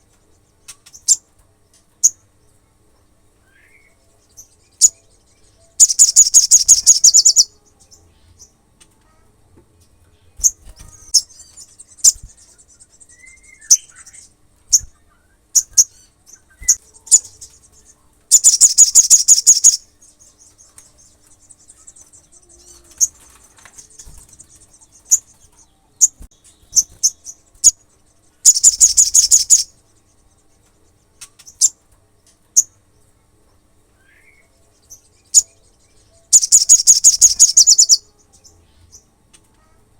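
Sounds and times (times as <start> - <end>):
bird high trills: 5.6 - 7.5, 18.3 - 19.9, 28.4 - 29.8, 35.3 - 38.1
bird soft high twittering: 5.8 - 7.5, 28.5 - 29.7, 36.4 - 38.0
bird sharp chips: 28.5 - 29.7.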